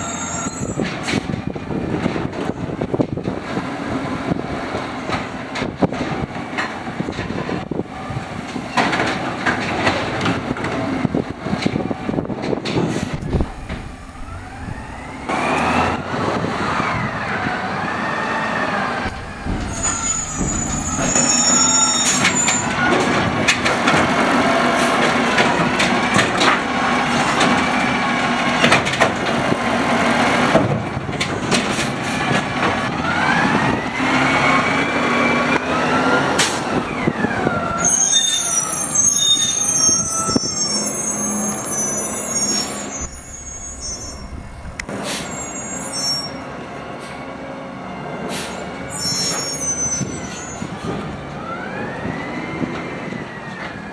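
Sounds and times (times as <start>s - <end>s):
high squeals: 0.0s - 0.9s, 12.8s - 16.1s, 16.8s - 23.4s, 37.8s - 46.6s, 48.9s - 50.7s
hydraulic arm whining: 11.7s - 29.6s, 37.5s - 46.5s
garbage cart knocks and bangs: 12.5s - 16.0s, 19.0s - 24.2s
truck engine idling: 12.9s - 29.8s, 42.5s - 45.7s.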